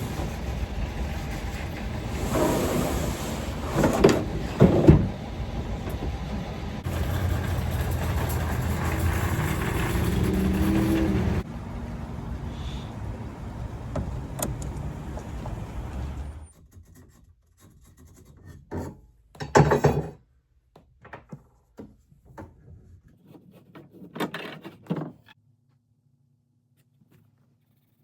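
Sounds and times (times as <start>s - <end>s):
vehicle road noise: 0.0s - 16.5s.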